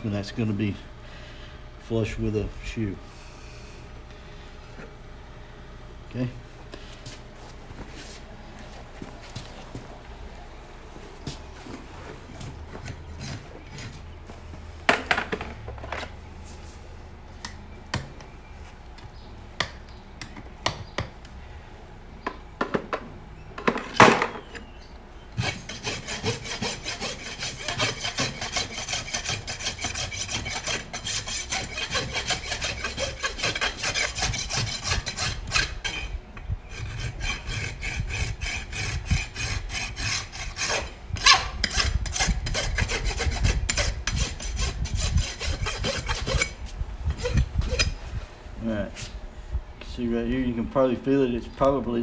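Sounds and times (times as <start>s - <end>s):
rasp filing a hoof: 12.3s - 14.2s, 24.3s - 48.2s.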